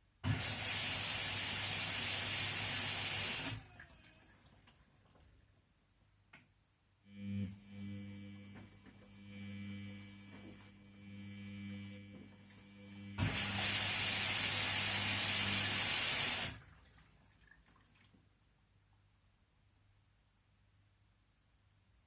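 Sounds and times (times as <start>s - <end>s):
washing machine electrical hum: 0.2s - 5.6s, 7.0s - 18.1s
rush of spraying water: 0.3s - 3.8s, 13.2s - 16.6s
faint water sounds: 3.5s - 5.6s, 16.5s - 19.0s.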